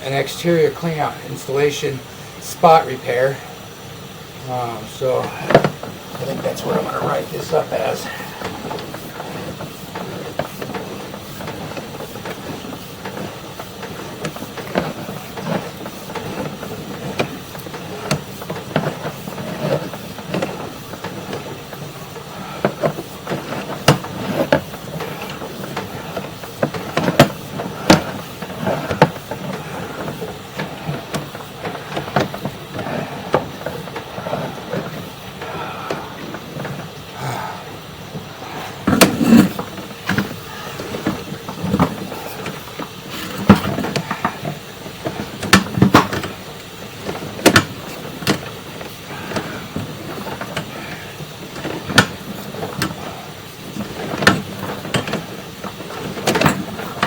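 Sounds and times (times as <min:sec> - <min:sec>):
steady hiss: 0:00.0 - 0:57.0
cable clicks and knocks: 0:08.0 - 0:37.0.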